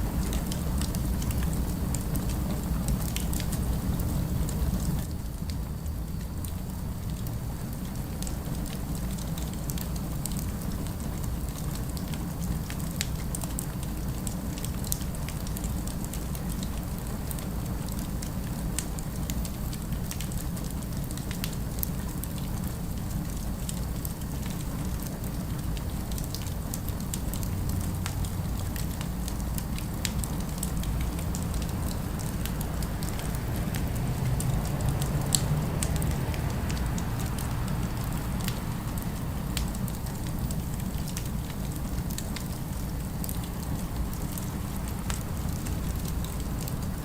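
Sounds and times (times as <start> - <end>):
fireplace crackling: 28.5 - 47.0.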